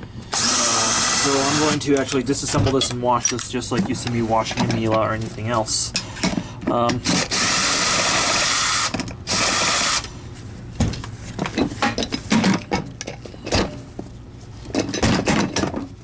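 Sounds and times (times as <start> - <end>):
clicks and knocks of parts: 1.9 - 5.2, 10.8 - 13.8, 14.7 - 16.0.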